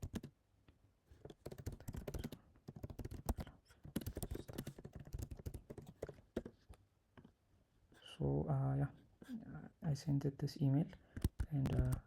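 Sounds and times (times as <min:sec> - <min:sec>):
typing on a computer keyboard: 0:00.0 - 0:00.3, 0:01.2 - 0:06.5.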